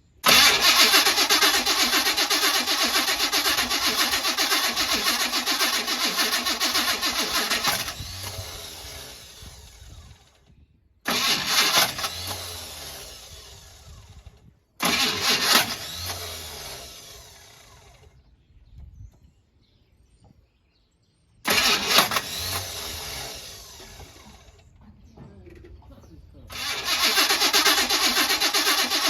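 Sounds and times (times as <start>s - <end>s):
car engine cranking: 0.2s - 10.2s, 11.1s - 14.1s, 14.8s - 18.0s, 21.5s - 24.8s, 26.5s - 29.0s.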